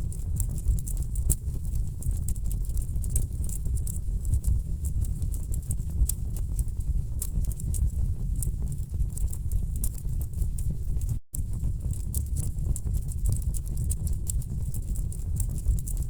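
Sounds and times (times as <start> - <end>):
low rumble of burning logs: 0.0 - 16.0
wood fire crackling: 4.8 - 16.0.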